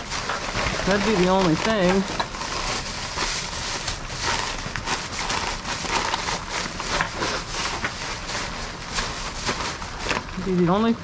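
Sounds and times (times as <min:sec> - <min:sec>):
crackles and taps: 0:00.0 - 0:10.4.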